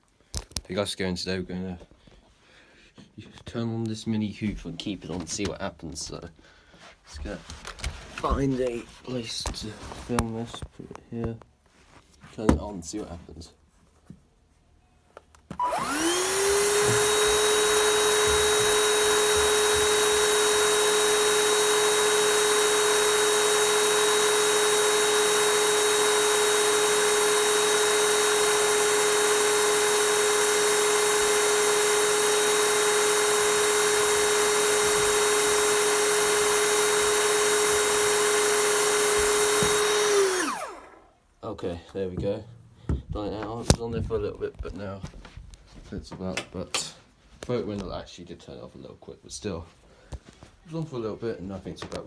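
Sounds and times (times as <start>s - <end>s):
handheld vacuum cleaner whine: 15.5s - 41.1s.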